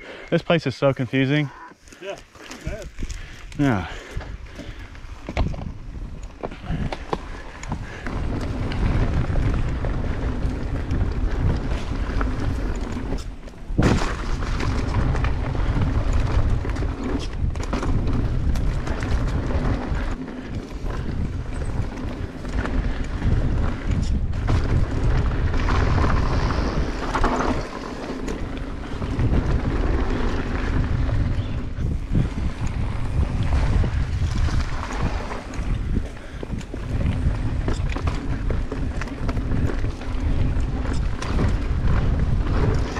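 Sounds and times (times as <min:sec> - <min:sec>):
bike tyres rumbling on dirt: 0:01.1 - 0:42.9
wind buffeting microphone: 0:02.0 - 0:42.9
bike knocking over bumps: 0:04.6 - 0:20.1.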